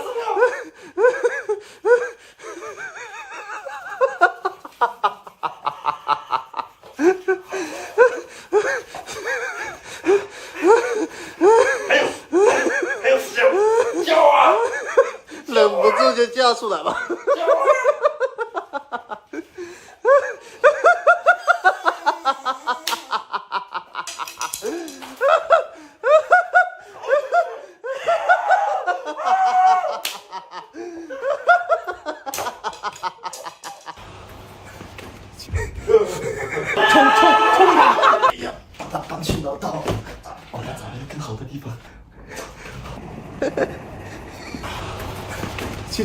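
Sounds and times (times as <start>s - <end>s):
people laughing: 0.0s - 39.2s, 42.3s - 46.0s
high-pitched laughter: 35.5s - 38.4s.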